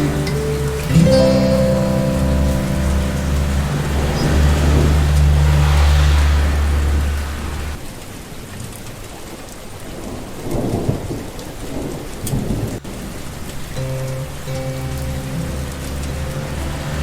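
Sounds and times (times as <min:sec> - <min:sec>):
steady rainfall: 0:00.0 - 0:17.0
low rumble of thunder: 0:01.8 - 0:07.8.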